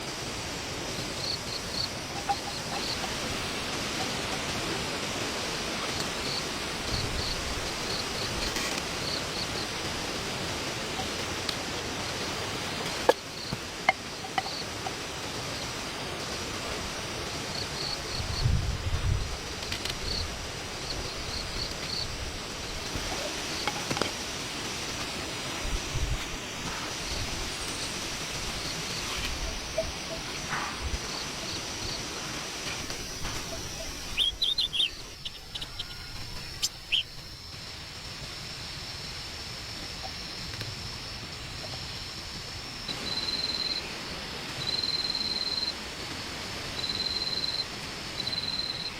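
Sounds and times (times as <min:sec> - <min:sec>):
steady hiss: 0:00.0 - 0:48.9
high insect chirps: 0:00.9 - 0:04.2, 0:06.0 - 0:10.4, 0:13.0 - 0:15.8, 0:26.9 - 0:45.8, 0:46.7 - 0:48.9
bird chirping: 0:33.0 - 0:37.4.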